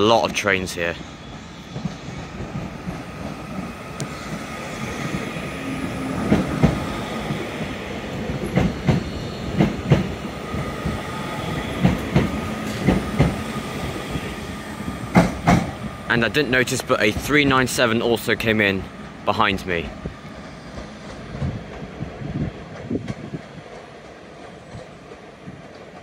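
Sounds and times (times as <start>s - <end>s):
train rumble: 0.0s - 26.0s
wheels clacking over rail joints: 1.8s - 18.0s.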